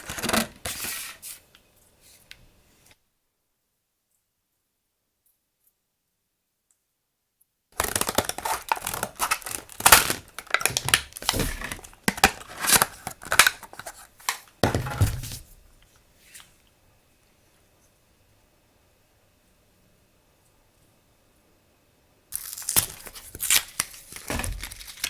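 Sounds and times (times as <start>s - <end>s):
paper crinkling and tearing: 7.8s - 14.5s, 22.3s - 25.0s.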